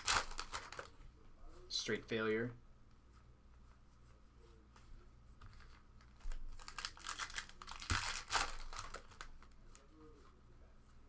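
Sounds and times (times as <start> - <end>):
cards and foil wrapper rustling: 0.0 - 1.0, 5.5 - 9.9.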